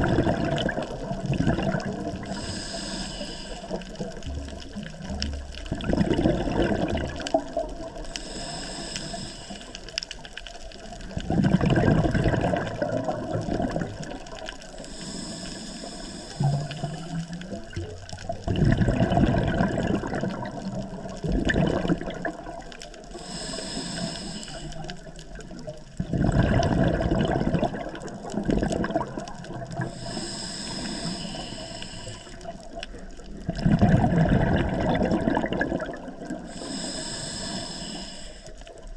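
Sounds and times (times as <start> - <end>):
exhaled bubbles burbling: 0.0 - 2.6, 3.6 - 8.1, 10.2 - 14.8, 16.4 - 23.2, 24.9 - 30.2, 32.2 - 36.6
regulator inhale hiss: 2.2 - 4.2, 8.0 - 10.3, 14.7 - 17.4, 23.0 - 25.1, 29.8 - 33.2, 36.3 - 38.8.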